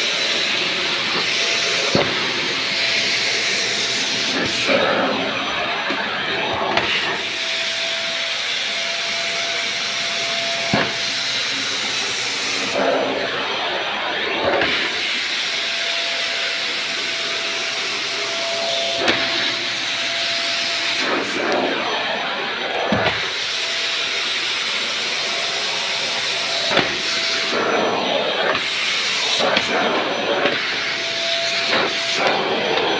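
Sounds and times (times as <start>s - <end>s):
vacuum cleaner running: 0.0s - 32.9s.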